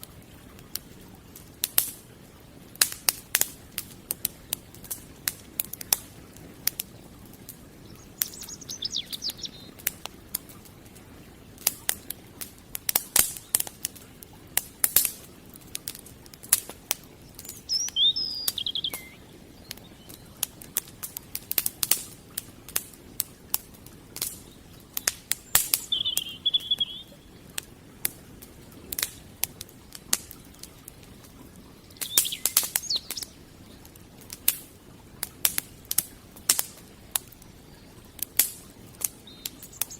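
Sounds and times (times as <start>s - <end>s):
wood fire crackling and popping: 0.0s - 39.9s
small bird chirping: 7.8s - 9.8s, 17.3s - 20.4s, 25.0s - 27.3s, 31.9s - 33.4s, 39.2s - 39.9s.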